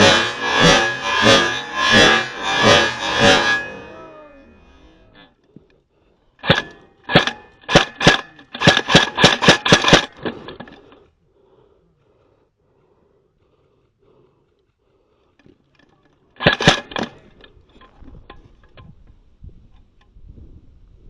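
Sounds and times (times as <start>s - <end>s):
airsoft gun shots: 6.4s - 10.4s, 16.4s - 17.2s.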